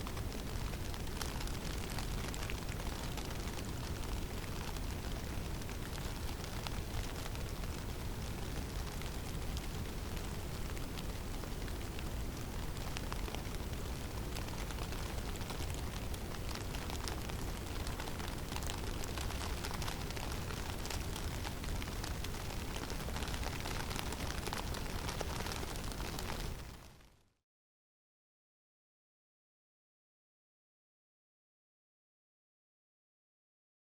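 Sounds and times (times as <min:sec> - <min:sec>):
falling snow ticking: 0:00.0 - 0:26.9.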